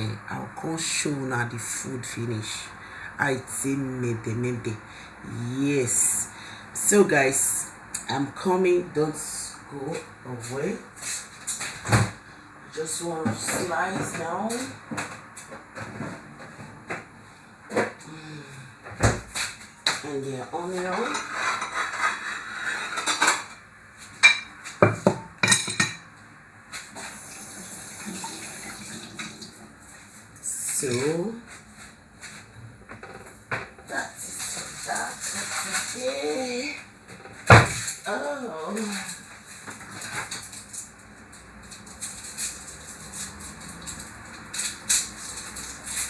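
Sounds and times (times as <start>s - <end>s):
kitchen utensils and dishes clattering: 20.6s - 23.6s, 24.2s - 26.1s, 32.9s - 41.0s, 41.6s - 46.0s
running water hiss: 27.0s - 29.7s.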